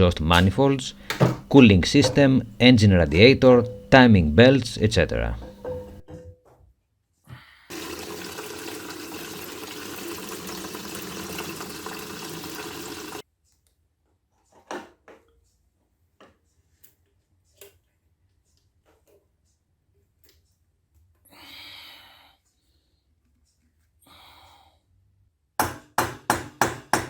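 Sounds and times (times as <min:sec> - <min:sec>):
liquid pouring: 0:07.7 - 0:13.2.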